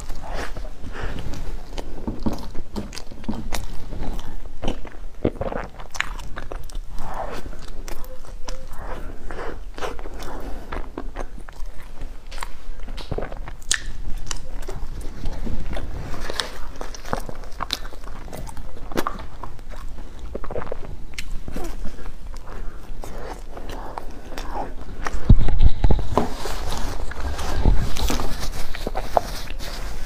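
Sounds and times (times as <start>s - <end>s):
biting and chewing: 0.0s - 30.0s
lip and mouth smacks: 12.3s - 15.0s.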